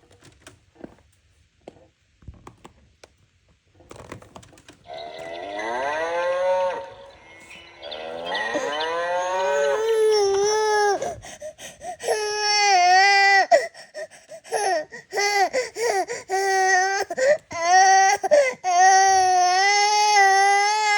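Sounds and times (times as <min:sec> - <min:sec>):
baby crying: 0:09.3 - 0:20.9.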